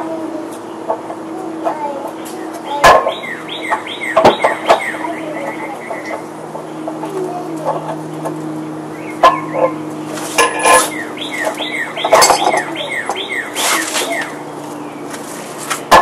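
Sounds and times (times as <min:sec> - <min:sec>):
steady low hum: 0:00.0 - 0:16.0
sharp knocks and clinks: 0:10.4 - 0:13.2.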